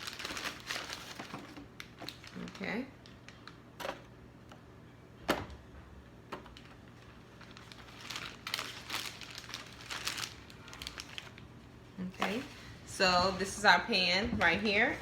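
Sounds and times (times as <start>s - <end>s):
rustling and crinkling: 0.0s - 4.1s, 6.3s - 15.0s.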